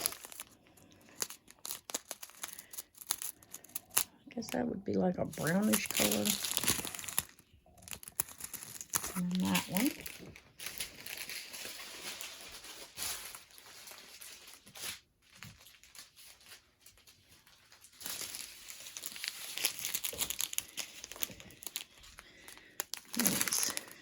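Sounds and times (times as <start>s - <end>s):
plastic packets crinkling: 0.0s - 24.0s.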